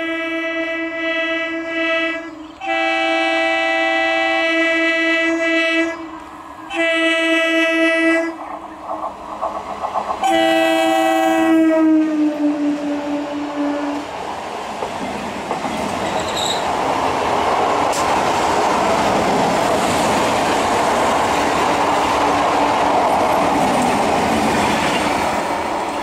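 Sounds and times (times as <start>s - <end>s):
train wheels rumbling and rattling: 6.0s - 26.0s
high wheel squeal: 16.0s - 16.7s.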